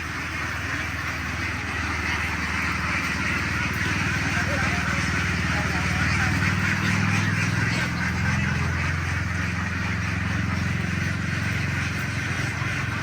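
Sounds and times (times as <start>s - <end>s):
ducks quacking: 0.0s - 13.0s
truck engine idling: 0.0s - 13.0s.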